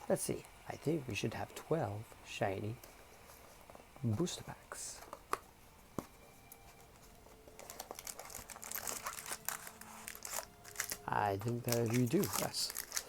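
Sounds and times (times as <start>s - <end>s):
foil wrappers crinkling: 6.4s - 13.0s.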